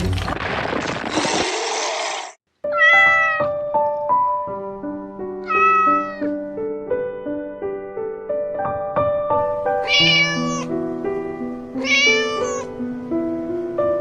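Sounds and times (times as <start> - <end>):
gentle piano music: 2.6 - 14.0
cat meowing: 2.7 - 3.6, 5.4 - 6.4, 9.8 - 10.7, 11.8 - 12.8.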